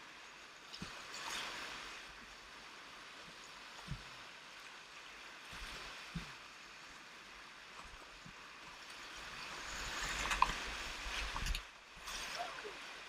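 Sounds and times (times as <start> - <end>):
whitewater rapids rushing: 9.4 - 13.0.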